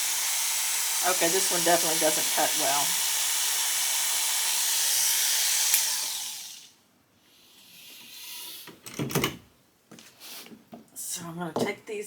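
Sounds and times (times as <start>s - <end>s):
electric clipper buzzing: 0.0s - 6.7s.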